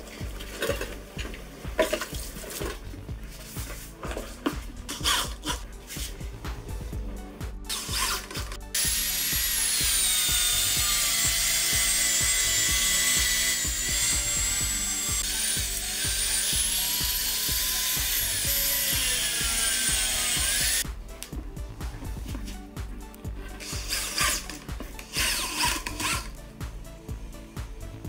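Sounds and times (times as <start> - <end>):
angle grinder cutting rubber: 7.7 - 20.9, 23.6 - 26.4.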